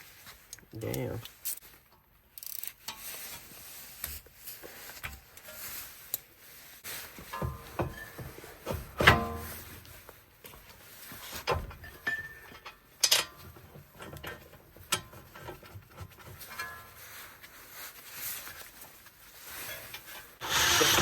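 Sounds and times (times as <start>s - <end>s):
tools knocking and clicking: 11.5s - 15.7s.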